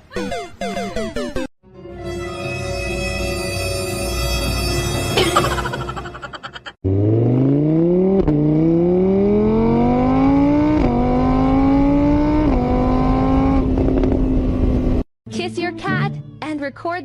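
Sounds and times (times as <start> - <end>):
music: 0.1 - 6.2, 15.3 - 17.0
car engine accelerating hard: 6.8 - 15.0.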